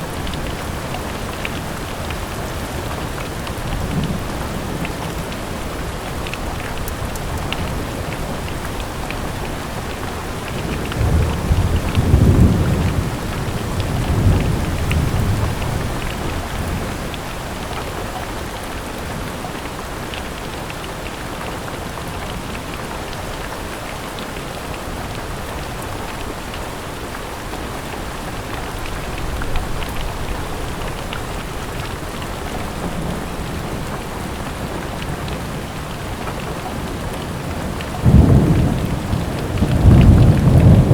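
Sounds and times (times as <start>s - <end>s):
thunder rumbling: 0.0s - 17.1s, 28.7s - 40.9s
raindrops ticking: 0.0s - 40.9s
steady rain hiss: 0.0s - 40.9s.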